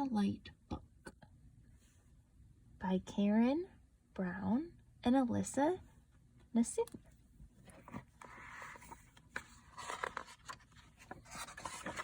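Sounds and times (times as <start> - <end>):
paper pages rustling: 7.6 - 12.0.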